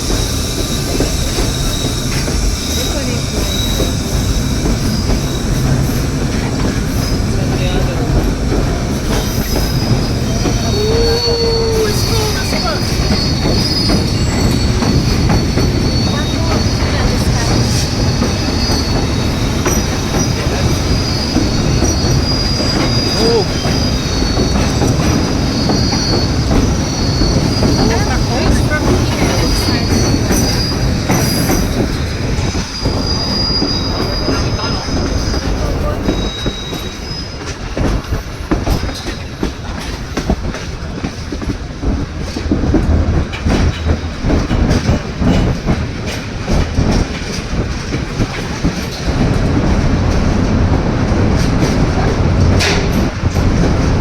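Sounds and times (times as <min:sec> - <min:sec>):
high-pitched wheel squeal: 0:00.0 - 0:06.0, 0:09.1 - 0:39.2
train cars rumbling on rails: 0:00.0 - 0:54.0.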